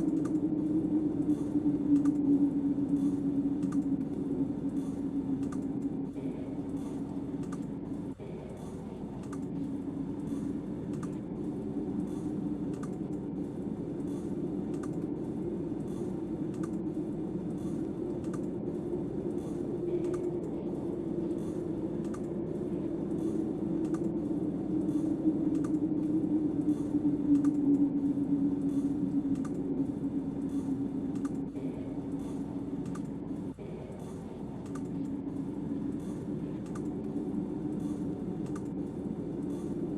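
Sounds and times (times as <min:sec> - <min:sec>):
droning note: 0:00.0 - 0:07.2
wind howling: 0:00.0 - 0:39.9.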